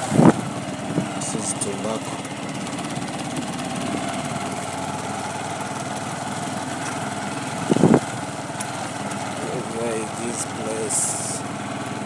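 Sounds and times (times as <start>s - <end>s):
small vehicle engine running: 0.0s - 12.0s.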